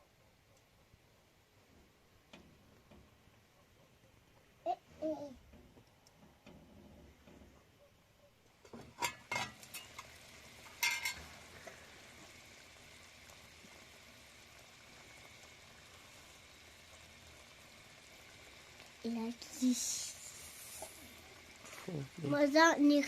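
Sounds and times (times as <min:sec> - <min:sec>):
food frying and sizzling: 0:08.4 - 0:23.0.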